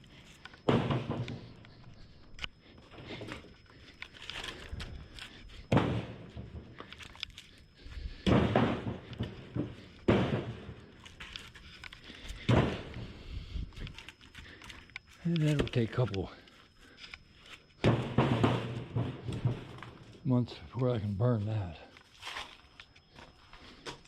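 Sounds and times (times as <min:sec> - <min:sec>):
firewood thunking onto a load: 0:00.6 - 0:02.0, 0:02.9 - 0:14.1, 0:17.8 - 0:20.2.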